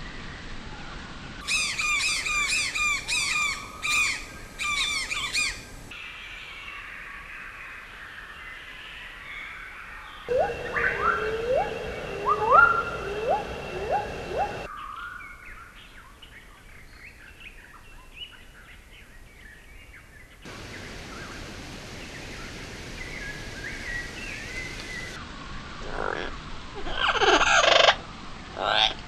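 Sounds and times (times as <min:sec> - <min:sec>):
harsh bird screeching: 0:01.5 - 0:05.6
faint high chirping: 0:10.3 - 0:14.7
short rising bird calls: 0:10.3 - 0:14.7.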